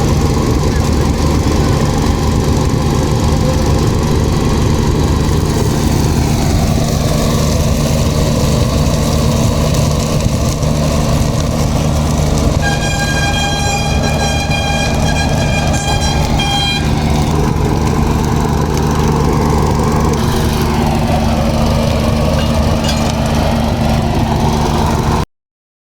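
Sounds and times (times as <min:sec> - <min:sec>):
engine droning: 0:00.0 - 0:25.2
horn sounding: 0:12.5 - 0:18.1.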